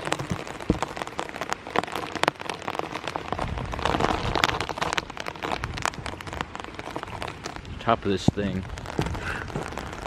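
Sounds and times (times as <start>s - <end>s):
rain falling: 0.0s - 10.0s
raindrops ticking near microphone: 0.0s - 10.0s.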